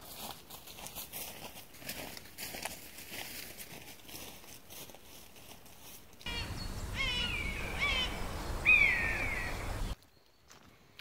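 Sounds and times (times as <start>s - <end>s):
bird calls falling whistles: 6.3s - 10.0s.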